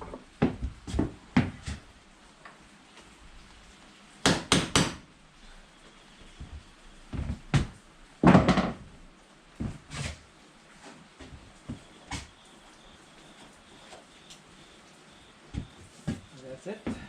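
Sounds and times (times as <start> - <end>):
knocks and thuds on wood: 0.0 - 1.8, 6.5 - 8.9, 15.5 - 16.3.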